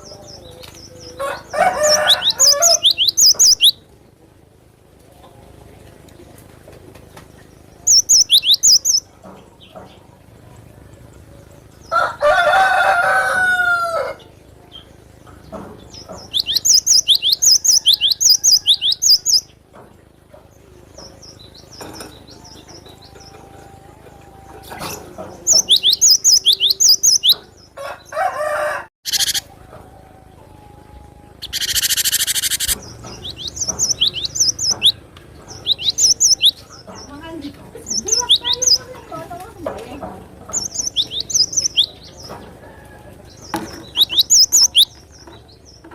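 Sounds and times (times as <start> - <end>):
lower drawn-out bird call: 29.1 - 29.5, 30.8 - 32.8.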